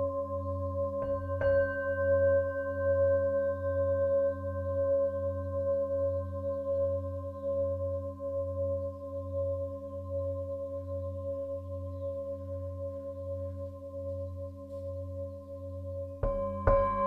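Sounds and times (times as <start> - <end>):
singing bowl struck: 1.0 - 3.8, 16.2 - 17.0
singing bowl ringing: 1.0 - 5.0, 16.2 - 17.0.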